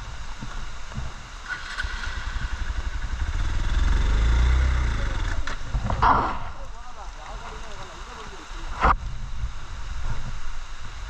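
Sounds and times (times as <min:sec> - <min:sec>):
motorcycle engine revving: 0:01.0 - 0:07.2.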